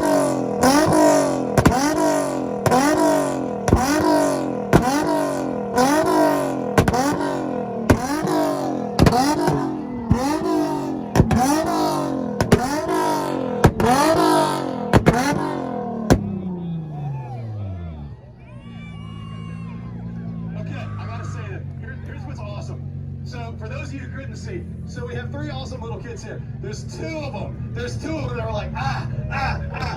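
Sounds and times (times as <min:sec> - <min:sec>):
exhaust pops: 0:00.0 - 0:16.5
car engine revving: 0:00.0 - 0:18.8, 0:19.6 - 0:29.9.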